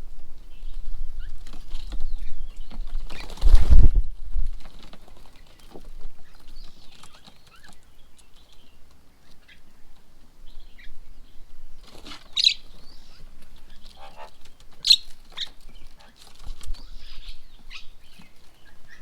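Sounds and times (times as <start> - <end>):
birds chirping and calling: 0.1 - 3.7, 4.7 - 19.0
small taps and rustles: 1.4 - 10.2.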